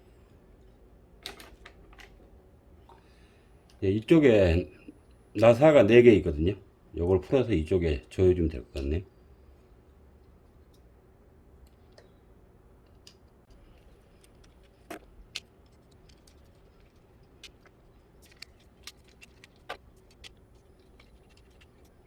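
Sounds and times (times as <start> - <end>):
plastic parts being handled: 13.5 - 22.0.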